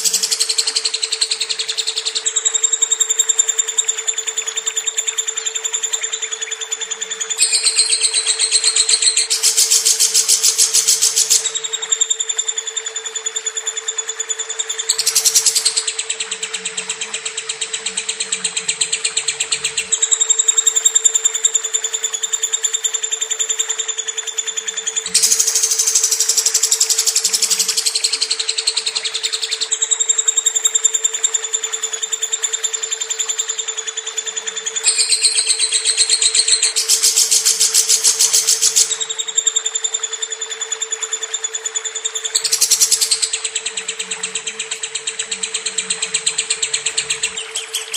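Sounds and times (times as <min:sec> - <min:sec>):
lovebird chattering trill: 0:00.0 - 0:47.9
lovebird chirping: 0:14.6 - 0:17.0, 0:25.0 - 0:29.6.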